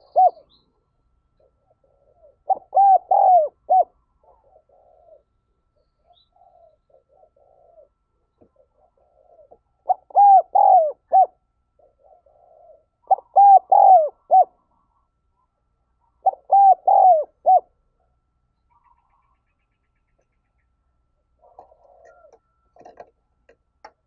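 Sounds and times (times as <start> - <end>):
dove cooing: 0.0 - 15.1, 15.9 - 20.3, 21.3 - 23.0.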